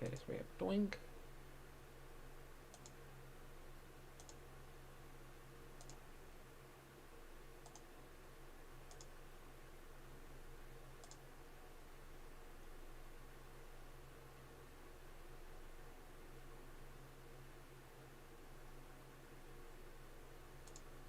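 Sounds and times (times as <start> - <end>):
faint low hum: 0.0 - 21.0
computer mouse double clicks: 4.2 - 4.4, 5.8 - 6.0.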